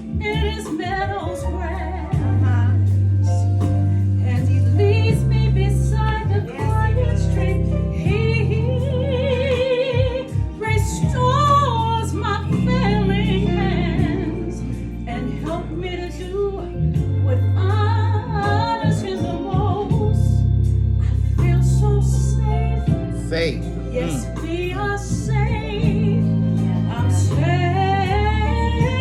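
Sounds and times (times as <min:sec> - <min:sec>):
sustained low accompaniment: 0:11.0 - 0:29.0.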